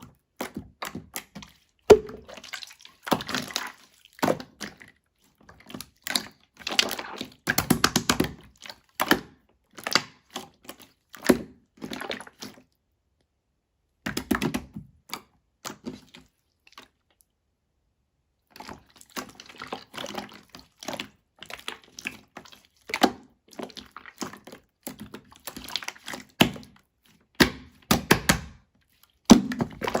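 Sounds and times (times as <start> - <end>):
taps and knocks on hard objects: 1.9 - 2.3.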